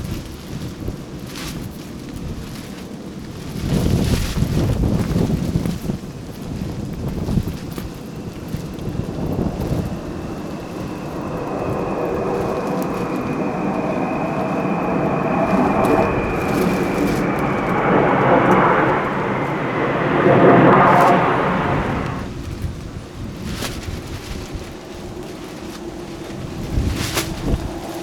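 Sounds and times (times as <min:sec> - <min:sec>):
military jet flying over: 0:07.8 - 0:22.5.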